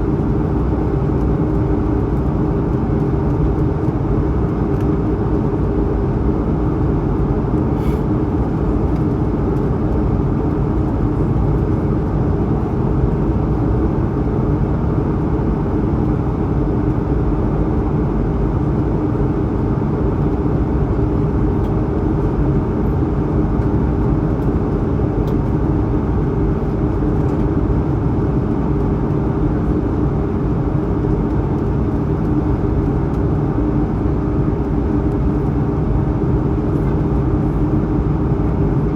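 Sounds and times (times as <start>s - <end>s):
aircraft cabin engine noise: 0.0s - 38.9s
low steady hum: 0.0s - 38.9s.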